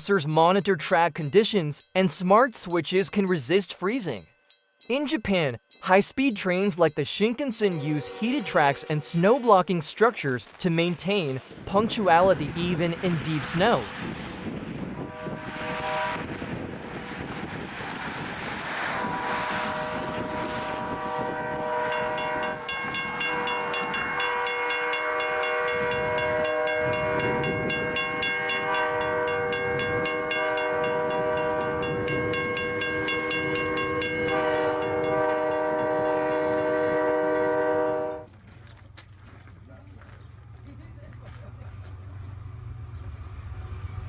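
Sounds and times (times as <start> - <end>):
train horn chord: 7.6 - 9.4, 14.9 - 16.5, 18.8 - 38.3.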